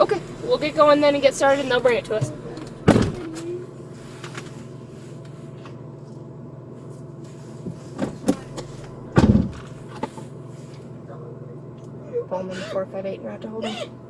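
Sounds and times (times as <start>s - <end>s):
car engine idling: 0.0s - 14.0s
heavy thump: 1.8s - 3.4s, 7.6s - 10.2s.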